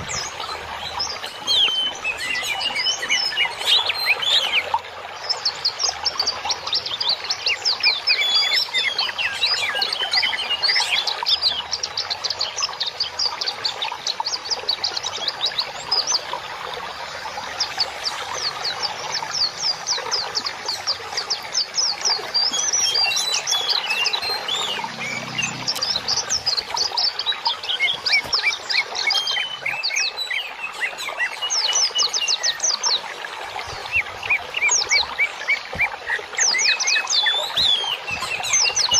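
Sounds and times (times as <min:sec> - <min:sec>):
small birds chirping: 0:17.0 - 0:38.9.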